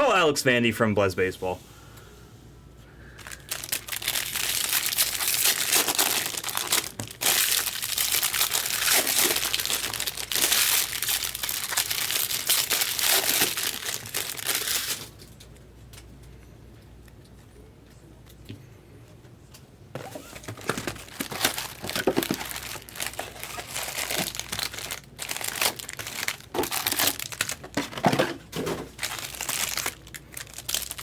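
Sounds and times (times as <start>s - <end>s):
plastic wrapping tearing and crinkling: 3.2s - 15.5s, 20.0s - 31.0s.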